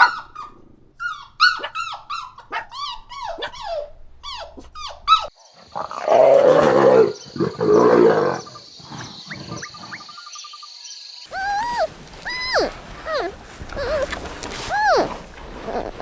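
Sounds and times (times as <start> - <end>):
high squeaky yelps: 0.0 - 5.4, 11.3 - 16.0.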